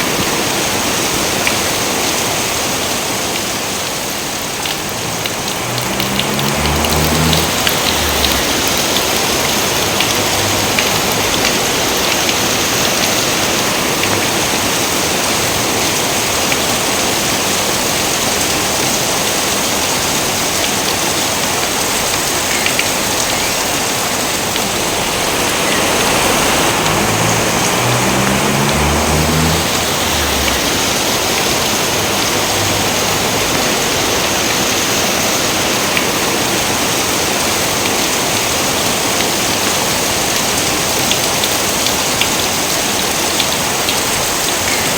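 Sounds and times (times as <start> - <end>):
heavy rain pouring: 0.0 - 44.9
low rumble: 23.0 - 32.8.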